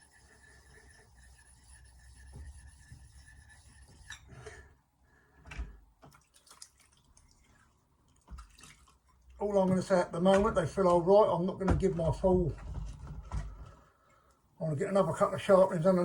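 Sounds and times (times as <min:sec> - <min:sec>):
water drips: 0:06.0 - 0:10.5.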